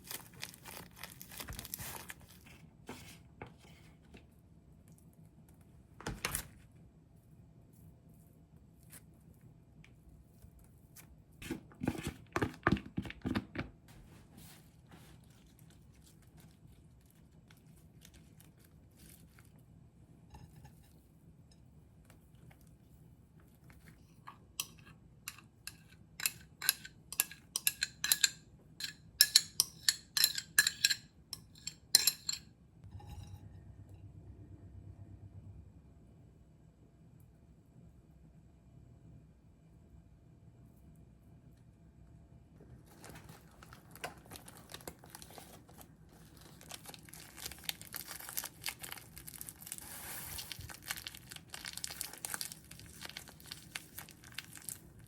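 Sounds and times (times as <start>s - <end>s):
kitchen utensils and dishes clinking: 24.6s - 33.5s.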